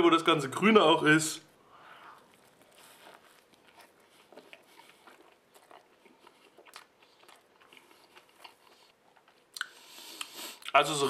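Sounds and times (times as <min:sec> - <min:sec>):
faint chewing with wet smacks: 0:02.0 - 0:10.8.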